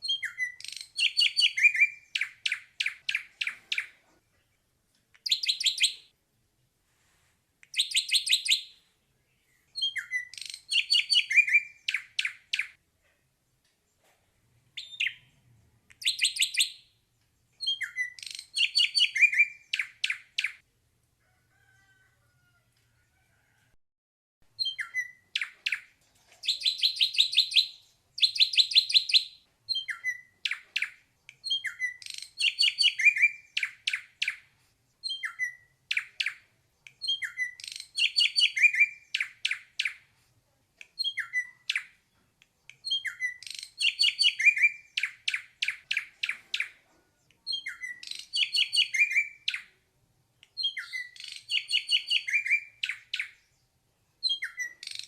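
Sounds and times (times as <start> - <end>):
bird singing whistled phrases: 0.0 - 3.9, 5.2 - 6.0, 7.7 - 8.8, 9.8 - 12.7, 14.8 - 15.3, 17.6 - 20.6, 24.6 - 34.4, 35.0 - 36.4, 37.0 - 40.0, 41.0 - 41.9, 42.8 - 46.7, 47.5 - 49.7, 50.6 - 53.4, 54.2 - 55.0.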